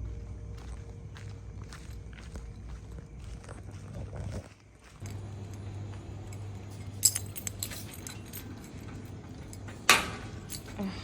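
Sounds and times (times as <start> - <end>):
steady low hum: 0.0 - 11.0
light clicks and clinks: 5.0 - 11.0.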